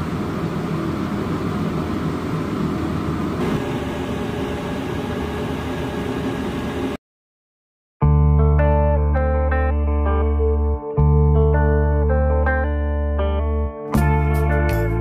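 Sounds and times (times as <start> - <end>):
ship engine drone: 0.0 - 7.0.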